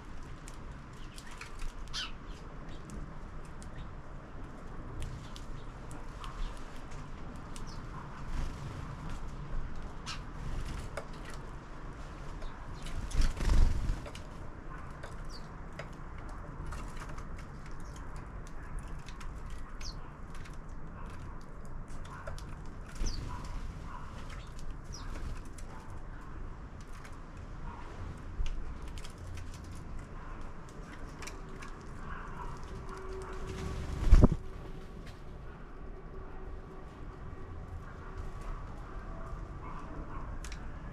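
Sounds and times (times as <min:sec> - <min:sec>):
sparrows chirping: 0:00.9 - 0:02.9, 0:07.5 - 0:08.5, 0:14.9 - 0:15.6, 0:22.2 - 0:25.2
wing flutters: 0:12.7 - 0:14.4, 0:30.8 - 0:35.2.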